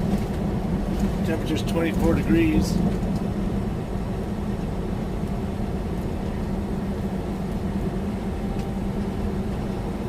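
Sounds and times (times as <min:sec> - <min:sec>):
road rumble: 0:00.0 - 0:10.0
truck engine drone: 0:00.0 - 0:10.0.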